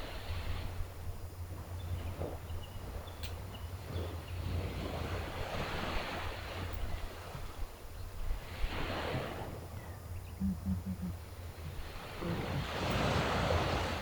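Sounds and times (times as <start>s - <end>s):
low rumble of surf: 0.0s - 14.0s
sea waves washing onto shore: 3.8s - 9.7s, 11.1s - 14.0s.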